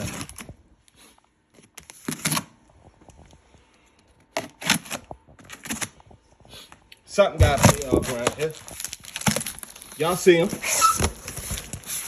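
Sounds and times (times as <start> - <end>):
handling rustles and knocks: 7.4 - 12.0.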